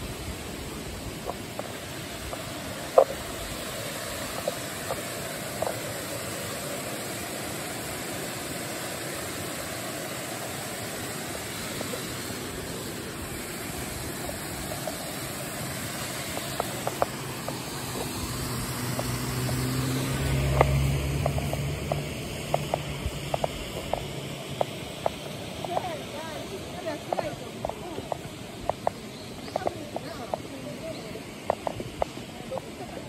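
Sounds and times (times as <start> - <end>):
mountain river rushing: 0.0 - 33.0
car engine approaching: 11.8 - 33.0.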